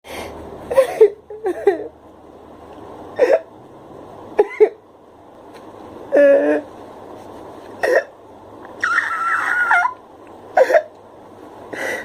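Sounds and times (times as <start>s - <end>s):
sharp vocal yelps: 8.8s - 10.0s.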